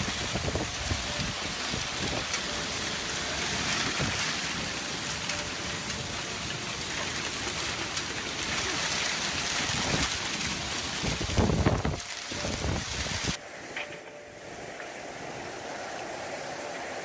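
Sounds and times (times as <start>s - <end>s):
wind buffeting microphone: 0.0s - 4.8s, 9.5s - 13.4s
strong wind: 0.0s - 5.0s, 7.9s - 13.4s
heavy rain: 0.0s - 13.4s.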